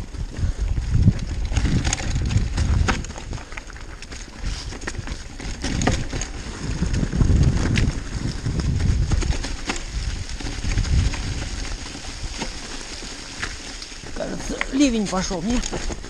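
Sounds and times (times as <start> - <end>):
wind rumble on microphone: 0.0 - 12.6
bike rattling with sharp knocks: 0.0 - 16.0
tyres rolling over loose stones: 0.0 - 16.0.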